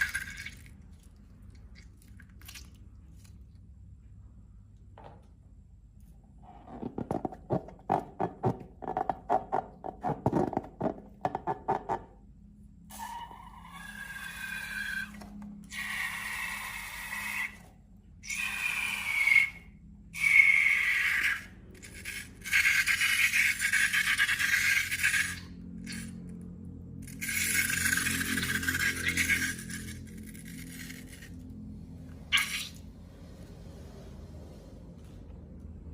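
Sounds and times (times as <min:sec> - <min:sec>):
hissing squeal: 0:12.9 - 0:17.6, 0:18.2 - 0:22.5, 0:32.3 - 0:34.7.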